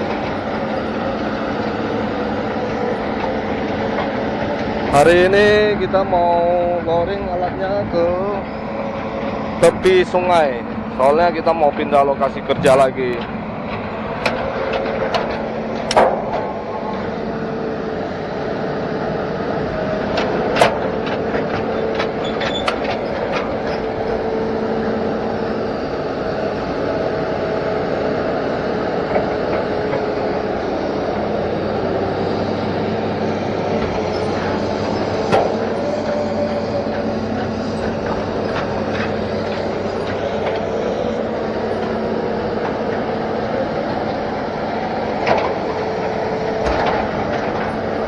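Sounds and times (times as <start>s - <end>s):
excavator diesel engine running: 0.0s - 48.0s
metallic clanks from tracks: 9.2s - 17.2s, 19.8s - 24.6s, 32.3s - 43.4s, 44.6s - 48.0s.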